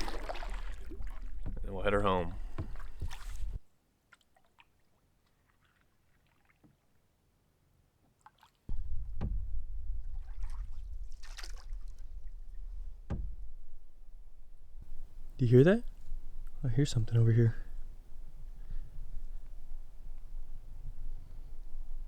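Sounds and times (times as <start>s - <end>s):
wind rumble on microphone: 8.7s - 22.0s.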